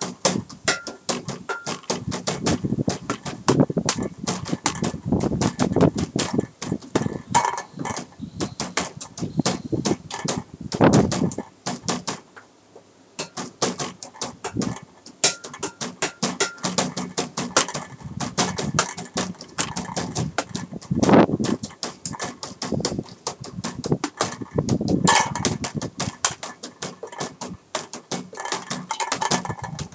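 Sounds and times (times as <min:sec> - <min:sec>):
tapping on everyday objects: 0:00.0 - 0:12.5, 0:13.2 - 0:29.9
low bass thumps: 0:02.0 - 0:11.4, 0:22.8 - 0:26.1.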